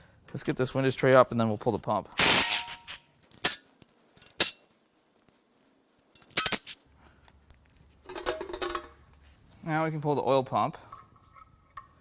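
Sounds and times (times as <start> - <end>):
metal tools clicking and clanking: 2.4 - 4.7, 6.1 - 6.8.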